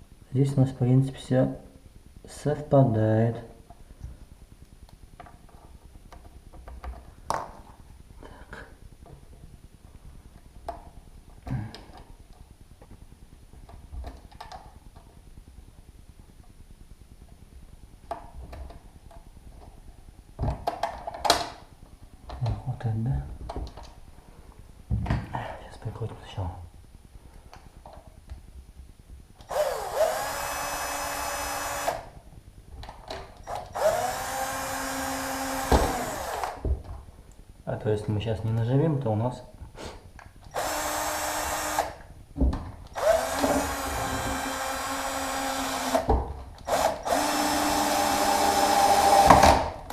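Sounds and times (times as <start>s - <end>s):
drill-driver driving screws: 29.4s - 32.1s, 33.4s - 36.6s, 40.5s - 42.0s, 42.9s - 49.8s.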